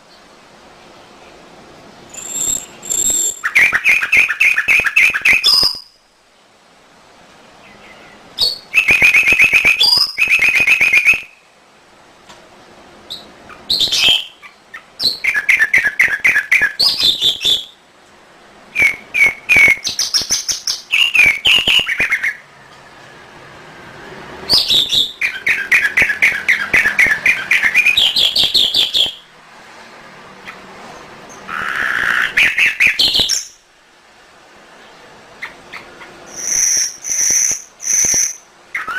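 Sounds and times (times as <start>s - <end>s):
canary singing trills: 2.1s - 6.0s, 7.6s - 11.4s, 13.1s - 17.8s, 18.7s - 22.5s, 24.5s - 29.3s, 31.3s - 33.6s, 35.4s - 38.9s.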